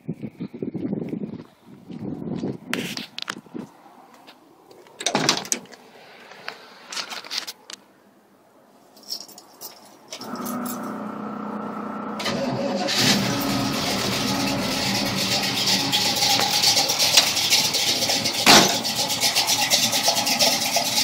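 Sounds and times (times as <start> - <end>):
handling noises: 2.8 - 7.9
keys jangling: 9.0 - 10.9
car engine starting and running: 10.2 - 21.0.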